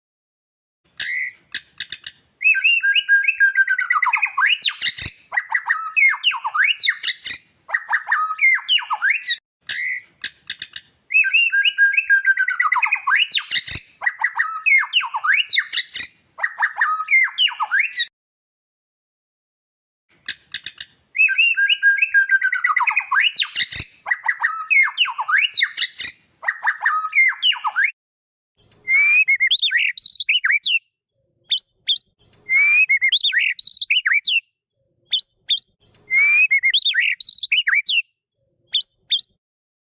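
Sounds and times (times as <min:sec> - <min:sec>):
bird singing whistled phrases: 0:01.0 - 0:10.0, 0:11.1 - 0:18.1, 0:21.2 - 0:28.0, 0:28.6 - 0:30.9, 0:31.5 - 0:34.5, 0:35.1 - 0:38.1, 0:38.7 - 0:39.4.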